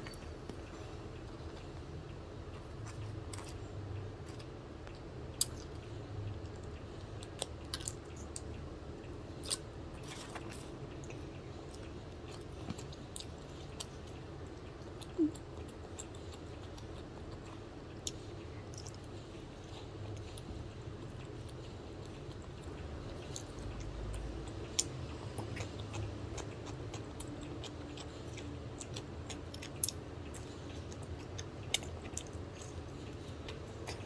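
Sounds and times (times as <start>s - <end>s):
low background hum: 0.0s - 34.0s
close chewing: 9.3s - 34.0s.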